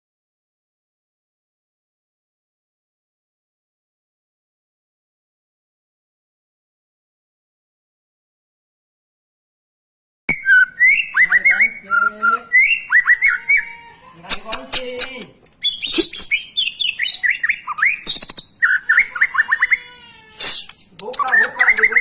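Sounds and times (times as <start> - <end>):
songbird singing whistled notes: 10.3 - 13.7, 15.6 - 19.5, 21.1 - 22.0.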